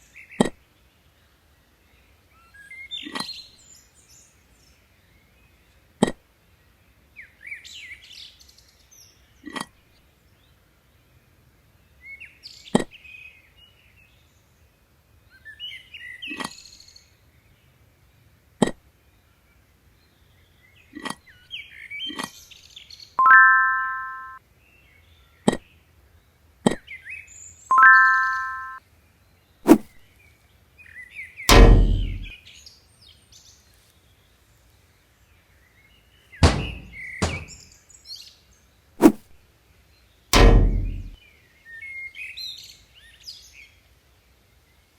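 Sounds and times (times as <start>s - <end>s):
bird chirping: 23.2s - 24.4s, 27.7s - 28.8s
held beeps: 23.2s - 24.4s, 27.7s - 28.8s
loud deep boom: 31.5s - 32.3s, 40.4s - 41.2s
sharp clicks and knocks: 31.5s - 32.3s, 36.4s - 37.6s, 40.4s - 41.2s.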